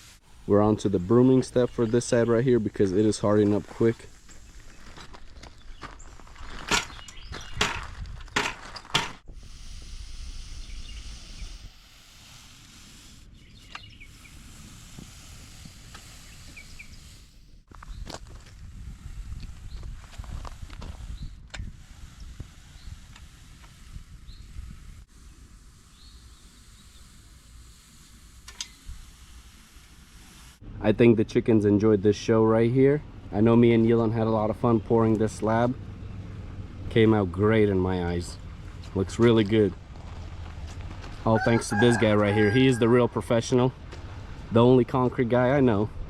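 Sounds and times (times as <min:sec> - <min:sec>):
stiff broom brushing concrete: 0:00.0 - 0:05.3, 0:09.3 - 0:30.6, 0:36.9 - 0:45.8
low rumbling wind: 0:00.2 - 0:12.0, 0:12.7 - 0:27.9, 0:30.6 - 0:46.0.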